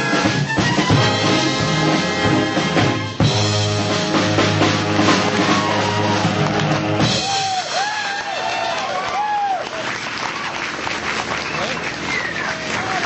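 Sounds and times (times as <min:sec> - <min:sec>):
swing big band playing: 0:00.0 - 0:08.3.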